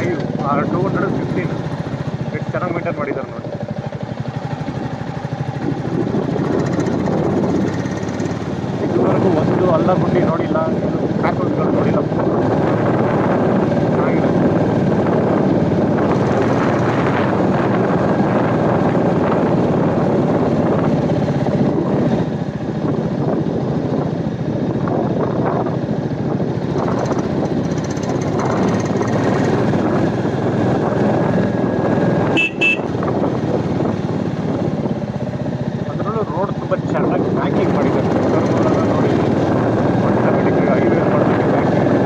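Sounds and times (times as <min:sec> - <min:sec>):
motorcycle engine cruising: 0:00.0 - 0:42.0
wind and road rush: 0:00.0 - 0:42.0
short high-pitched horn beep: 0:32.4 - 0:32.9.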